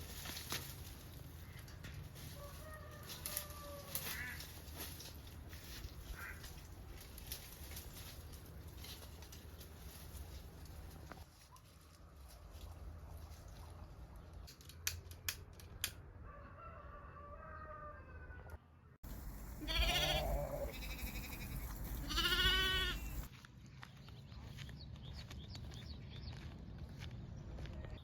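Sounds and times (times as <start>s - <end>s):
farm animals calling: 19.1s - 23.3s.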